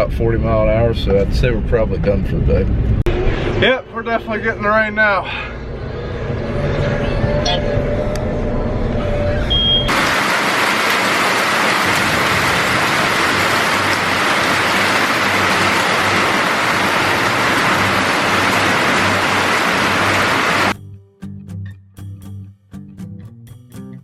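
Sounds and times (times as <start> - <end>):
low engine hum: 1.1 - 20.8
heavy rain pouring: 9.9 - 20.8.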